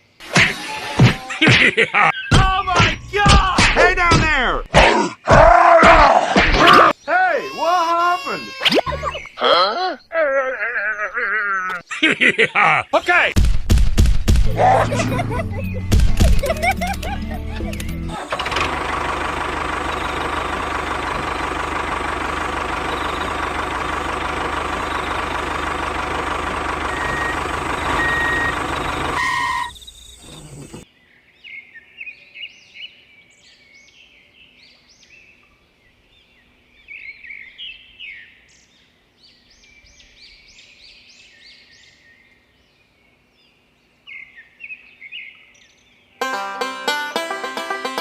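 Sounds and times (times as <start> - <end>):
small birds chirping: 0.0 - 4.6, 6.8 - 13.2, 19.2 - 46.2
loud engine drone: 16.7 - 30.8.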